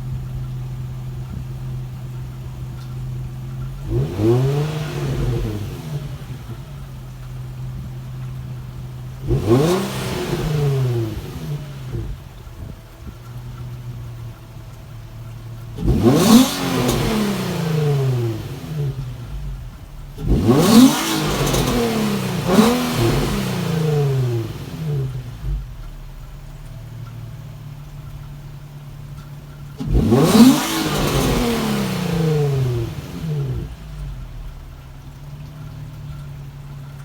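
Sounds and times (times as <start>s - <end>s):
car engine idling and revving: 0.0s - 37.0s.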